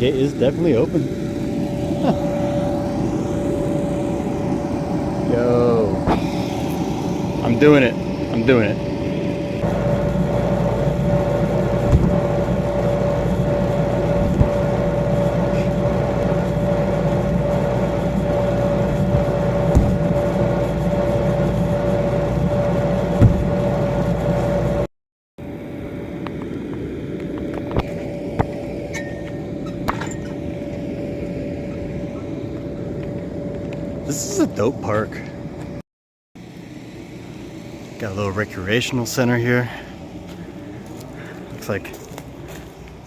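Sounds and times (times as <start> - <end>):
machine hum: 0.0 - 35.8, 36.4 - 43.0
sharp thumps: 11.6 - 13.3, 14.0 - 16.3, 18.2 - 21.8, 23.1 - 23.8.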